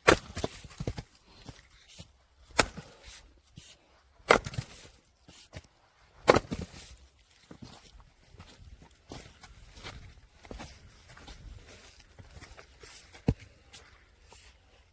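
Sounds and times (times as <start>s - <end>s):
axe chopping firewood: 0.0s - 1.1s, 2.5s - 3.2s, 4.2s - 5.0s, 6.2s - 6.8s.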